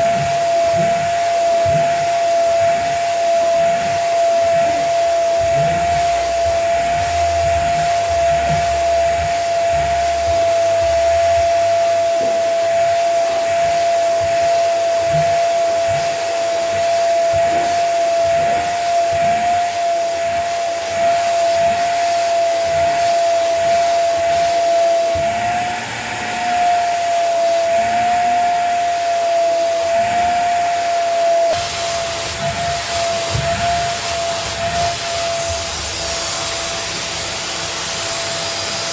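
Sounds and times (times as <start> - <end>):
vacuum suction hiss: 0.0 - 38.9
wet vacuum motor whine: 0.0 - 38.9.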